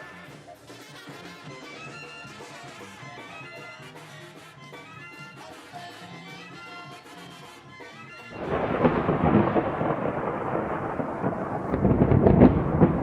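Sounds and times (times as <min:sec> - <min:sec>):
faint music: 0:00.0 - 0:13.0
rough rumbling with crackles: 0:08.4 - 0:13.0.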